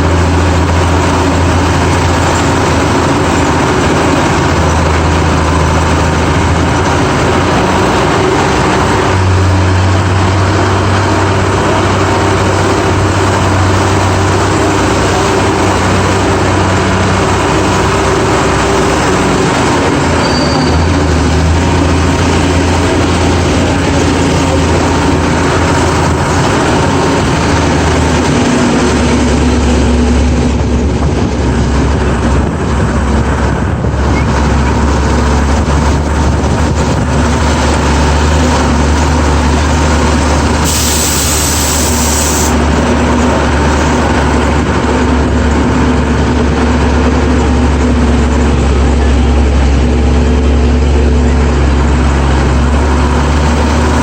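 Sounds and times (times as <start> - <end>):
truck engine droning: 0.0 - 54.0
brief hiss: 40.6 - 42.6.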